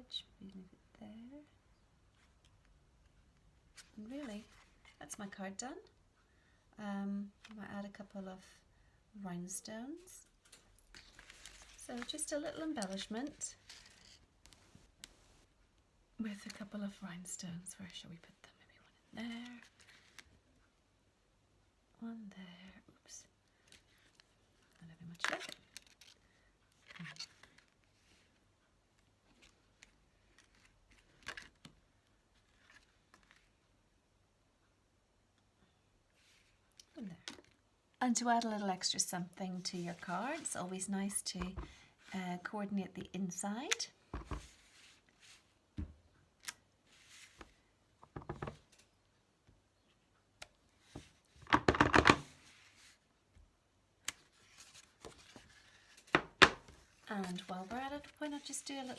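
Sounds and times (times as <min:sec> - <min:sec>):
paper rustling: 0:10.9 - 0:14.8, 0:54.1 - 0:56.2, 0:56.8 - 0:58.9.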